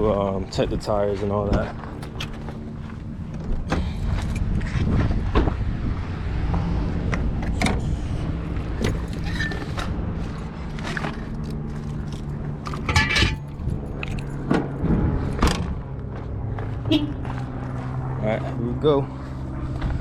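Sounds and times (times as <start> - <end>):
light clinks and knocks: 11.0 - 14.8.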